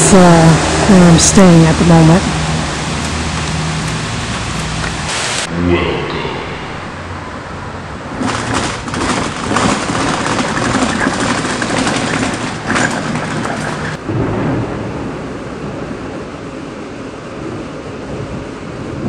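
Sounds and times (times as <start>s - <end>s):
steady rain: 0.0s - 19.0s
thunder rolling: 5.4s - 16.3s.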